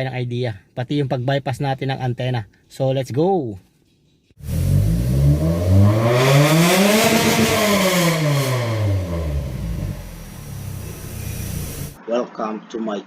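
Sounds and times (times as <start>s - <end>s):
car engine revving: 4.4s - 12.0s.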